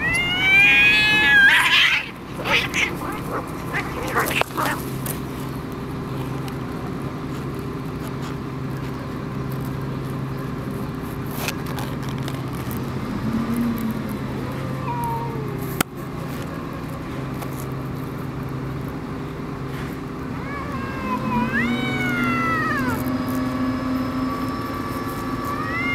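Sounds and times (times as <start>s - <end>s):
cats yowling: 0.0s - 5.1s, 13.2s - 15.8s, 20.1s - 25.9s
steady hum: 0.0s - 7.9s.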